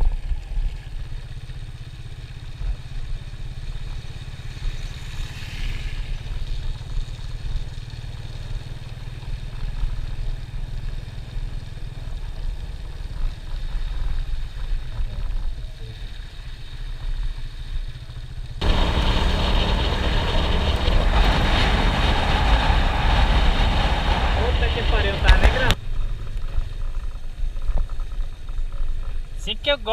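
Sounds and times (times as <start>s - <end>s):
vehicle engine rumble: 0.0s - 29.9s
road noise: 0.1s - 29.9s
loud rushing noise: 18.6s - 25.8s.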